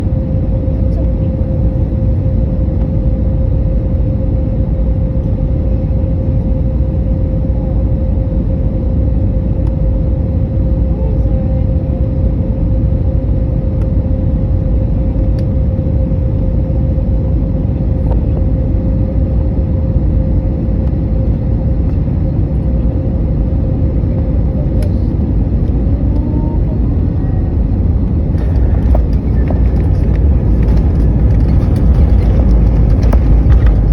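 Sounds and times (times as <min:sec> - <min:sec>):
aircraft cabin rumble: 0:00.0 - 0:33.9
steady hum: 0:00.0 - 0:33.9.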